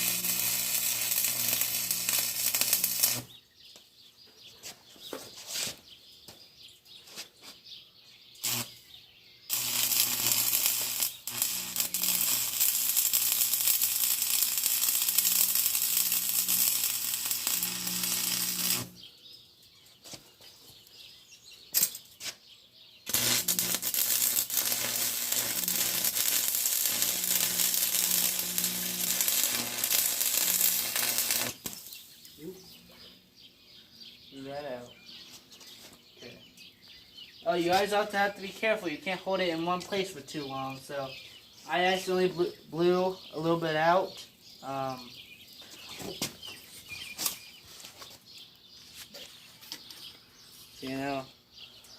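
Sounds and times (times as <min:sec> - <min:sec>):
welder humming: 0:00.0 - 0:03.3, 0:08.4 - 0:08.8, 0:09.5 - 0:19.0, 0:23.1 - 0:32.0
welding arc crackling: 0:00.0 - 0:03.3, 0:08.4 - 0:08.8, 0:09.5 - 0:19.0, 0:23.1 - 0:32.1.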